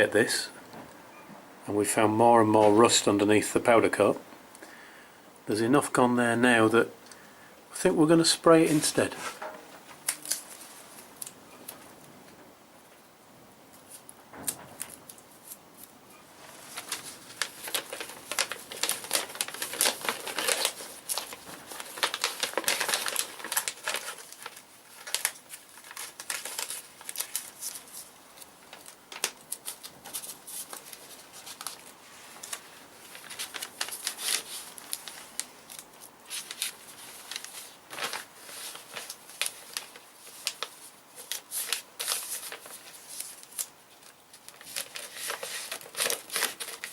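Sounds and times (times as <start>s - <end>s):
scratching and rustling: 13.7s - 46.9s.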